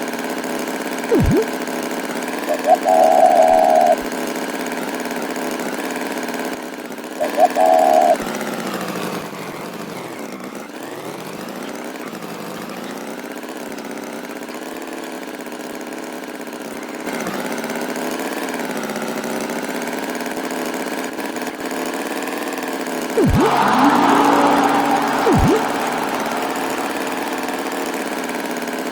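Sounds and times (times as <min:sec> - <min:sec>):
engine humming: 0:23.2 - 0:28.9.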